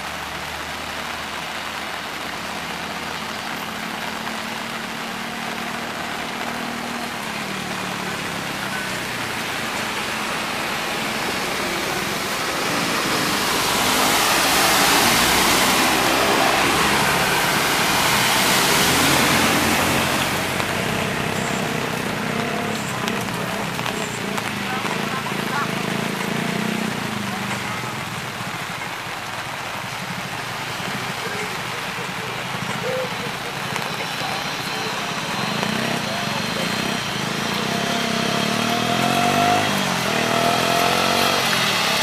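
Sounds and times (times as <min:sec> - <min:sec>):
rain on wet ground: 0:00.0 - 0:42.0.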